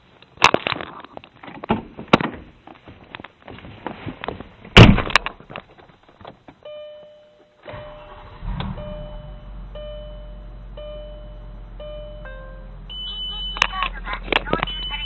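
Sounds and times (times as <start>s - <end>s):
clicks and knocks handling car: 0.4s - 6.6s
electronic chime tone: 8.8s - 13.6s.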